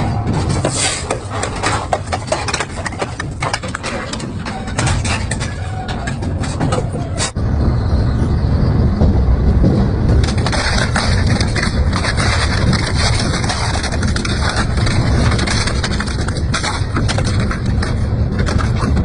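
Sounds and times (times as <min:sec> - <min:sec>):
metal cracking and crunching: 0:00.0 - 0:07.4, 0:09.6 - 0:19.0
deep machine grinding rumble: 0:07.2 - 0:19.0.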